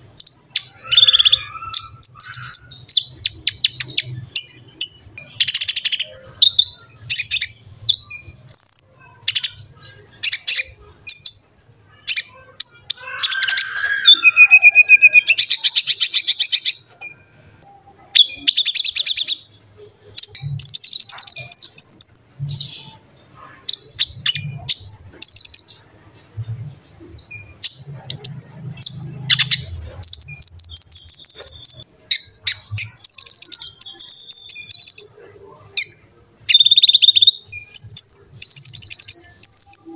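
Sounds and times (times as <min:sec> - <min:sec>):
sunbird singing: 0:00.0 - 0:39.9.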